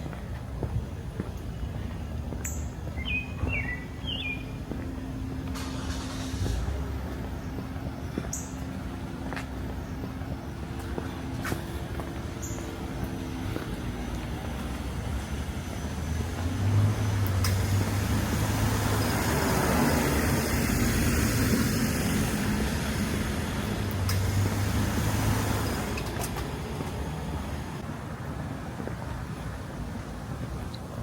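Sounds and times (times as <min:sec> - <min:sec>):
vehicle passing by: 0:04.7 - 0:27.9.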